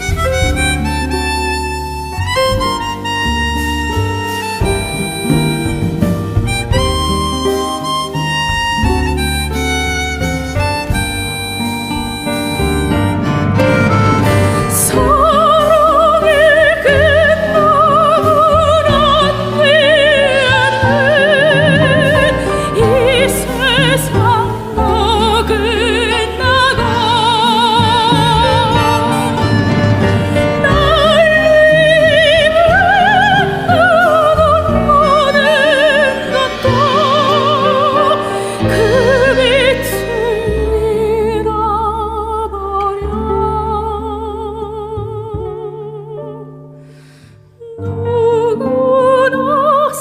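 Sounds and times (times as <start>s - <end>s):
soft instrumental accompaniment: 0.0s - 50.0s
soprano singing wordless notes: 11.0s - 50.0s.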